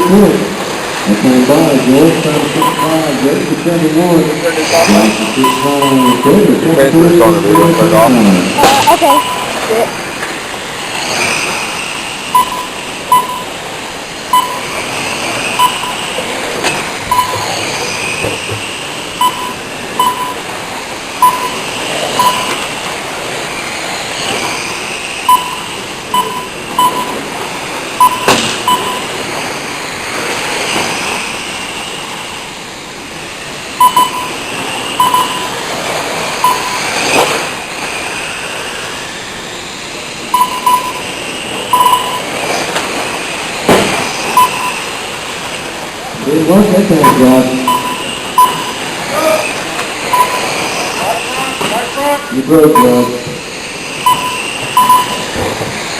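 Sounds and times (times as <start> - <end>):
short timing beeps: 0.0 - 0.3, 2.5 - 3.2, 4.9 - 6.7, 7.4 - 9.7, 12.3 - 13.6, 14.3 - 14.8, 15.6 - 16.2, 17.1 - 17.6, 19.2 - 20.5, 21.2 - 22.7, 25.2 - 27.3, 28.0 - 29.2, 33.8 - 35.6, 36.4 - 36.9, 40.3 - 42.4, 44.3 - 44.9, 46.9 - 48.9, 50.0 - 50.6, 52.7 - 53.3, 54.0 - 55.3
electric motors whining: 0.0 - 55.9
sharp knock: 28.2 - 28.7, 43.7 - 44.0.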